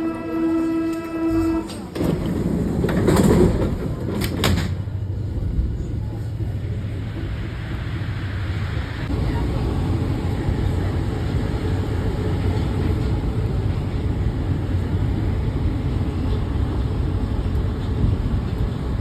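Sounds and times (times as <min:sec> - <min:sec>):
train rumbling: 0:00.0 - 0:19.0
sliding door: 0:01.2 - 0:04.9.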